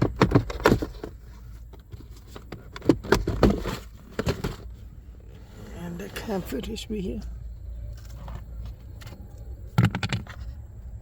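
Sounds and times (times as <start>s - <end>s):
plastic glove box clicks and knocks: 0.0s - 1.2s, 9.8s - 10.4s.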